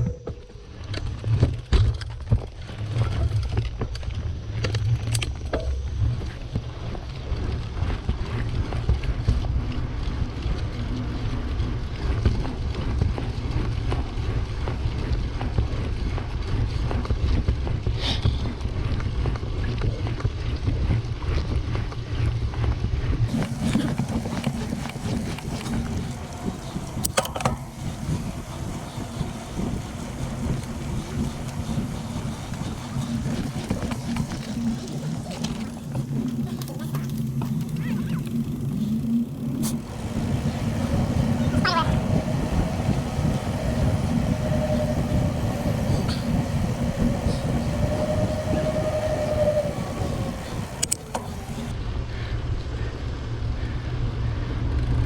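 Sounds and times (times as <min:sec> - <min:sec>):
wind buffeting microphone: 0:02.3 - 0:54.8.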